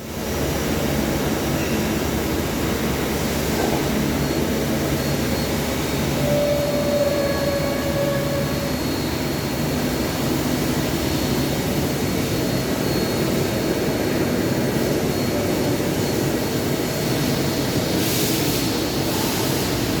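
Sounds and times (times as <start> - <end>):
brief machine whine: 3.7 - 10.2.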